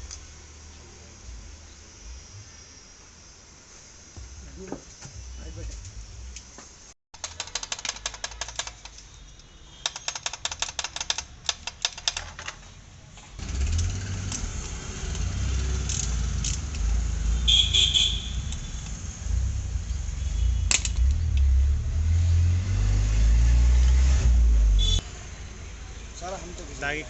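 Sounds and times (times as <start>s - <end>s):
ratchet wrench clicking: 7.2s - 9.1s, 9.8s - 12.7s, 13.7s - 17.0s
low rumble: 18.3s - 24.6s.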